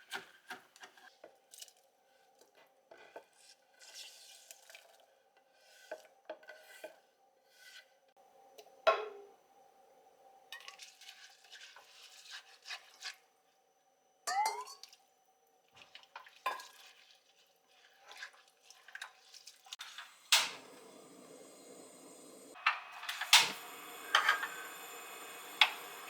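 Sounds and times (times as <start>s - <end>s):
kitchen utensils and dishes clinking: 14.3s - 14.9s, 19.8s - 26.0s
steady hiss: 19.8s - 26.0s.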